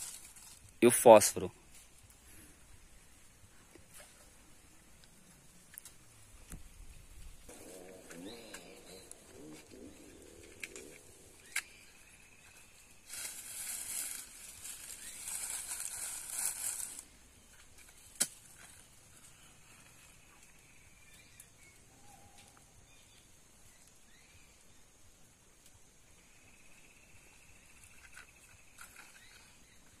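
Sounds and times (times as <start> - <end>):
dry straw rustling: 0.0 - 0.8, 7.3 - 20.1
faint outdoor hiss: 0.0 - 30.0.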